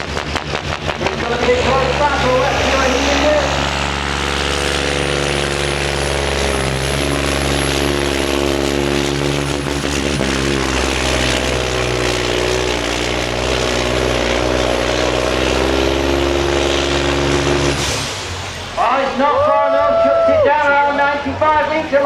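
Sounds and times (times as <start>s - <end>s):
truck engine under load: 0.0s - 19.5s
high engine whine: 0.0s - 22.0s.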